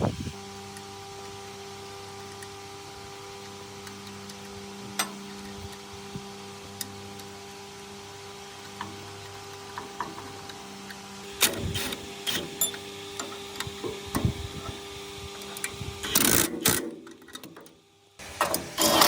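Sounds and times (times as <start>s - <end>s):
steady hum: 0.0s - 19.0s
metal scraping: 18.4s - 19.0s.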